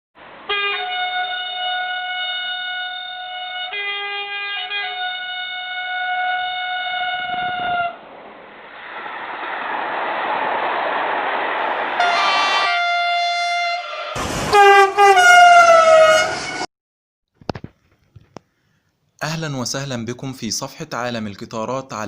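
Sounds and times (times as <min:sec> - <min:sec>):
train horn multi-tone blast: 0:00.4 - 0:08.0, 0:12.0 - 0:16.7
train running noise: 0:06.1 - 0:16.7.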